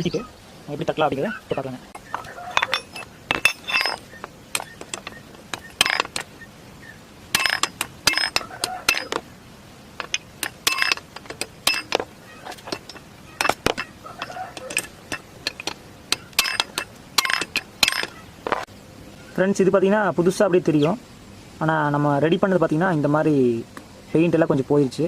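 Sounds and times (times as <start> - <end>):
hand tools clinking on metal: 1.5 - 6.4, 7.3 - 9.3, 10.0 - 18.7.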